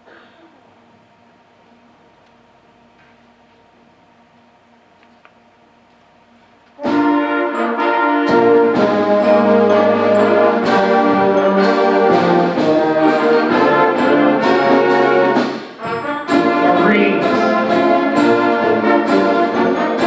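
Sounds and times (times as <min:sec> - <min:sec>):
band playing brass chords: 0:06.8 - 0:20.0.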